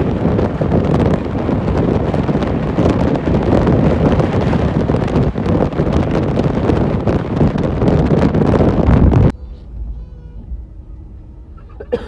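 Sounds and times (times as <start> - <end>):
moving train rumble: 0.0 - 12.0
wind on microphone: 0.0 - 12.0
faint hum tones: 8.3 - 12.0.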